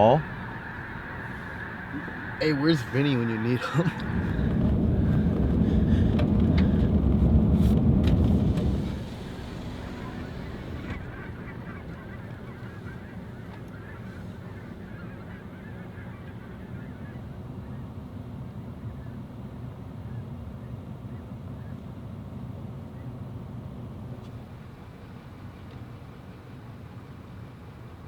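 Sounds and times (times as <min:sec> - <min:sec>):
geese honking: 0:00.0 - 0:06.8, 0:08.8 - 0:17.9
loud low rumble: 0:00.0 - 0:12.6.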